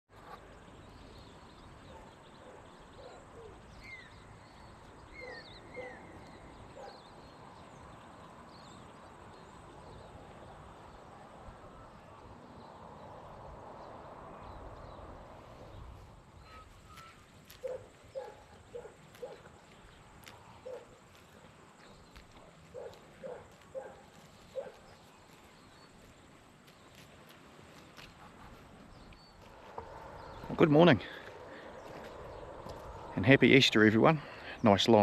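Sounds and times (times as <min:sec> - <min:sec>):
bird chirps: 0:00.2 - 0:10.2, 0:28.0 - 0:35.0.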